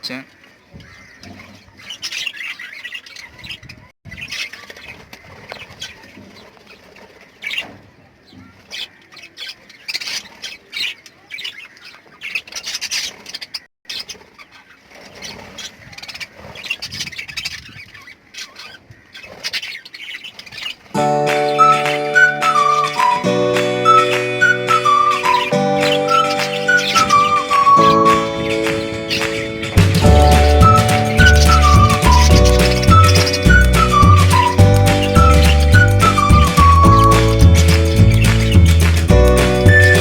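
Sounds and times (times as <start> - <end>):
lovebirds chirping and squawking: 0.0 - 40.0
music: 21.0 - 40.0.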